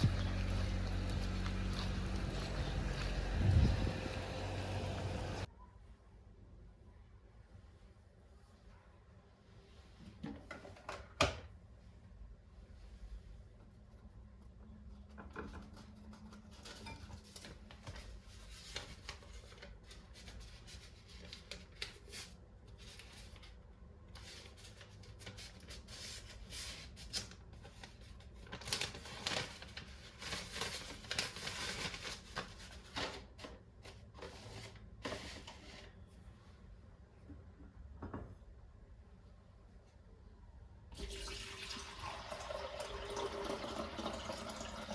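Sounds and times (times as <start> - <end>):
rustling: 15.8 - 36.6.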